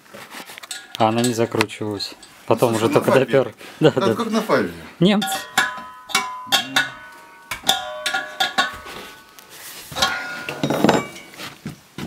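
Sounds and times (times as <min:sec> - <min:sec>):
metal parts clinking: 0:05.4 - 0:11.4.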